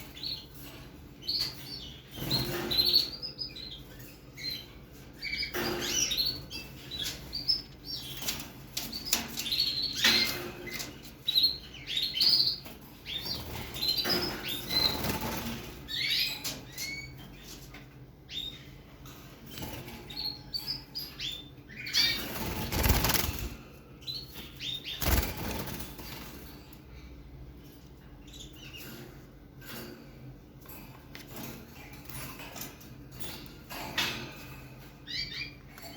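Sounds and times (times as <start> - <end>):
canary chick chirping: 0.0 - 26.5
wing fluttering: 22.0 - 23.6, 24.9 - 26.5.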